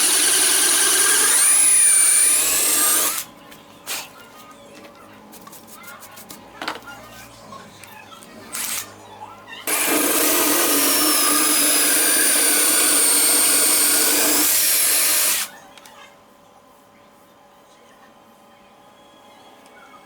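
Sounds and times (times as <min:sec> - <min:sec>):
electric power tool whining: 0:00.0 - 0:03.3, 0:09.7 - 0:15.5.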